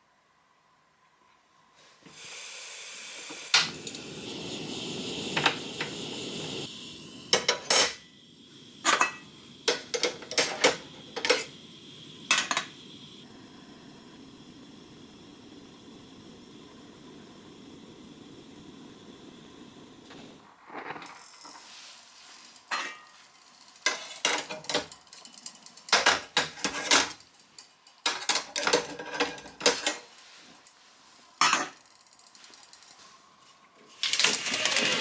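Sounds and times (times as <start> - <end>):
steady hiss: 1.7 - 35.0
metal utensils clinking on plate: 23.8 - 30.1.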